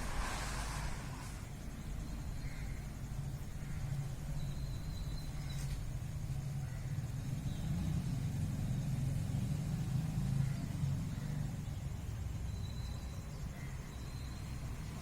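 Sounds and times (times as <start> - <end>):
low rumble: 0.0 - 2.7.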